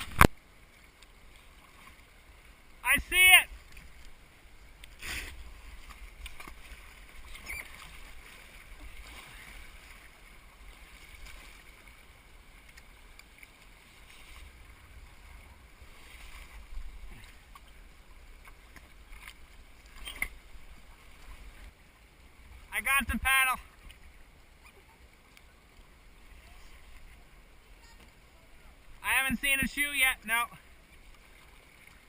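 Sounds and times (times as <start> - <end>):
paddle splashes and drips: 0.0 - 22.7, 23.3 - 29.0, 29.9 - 32.0
moving water: 0.0 - 32.0.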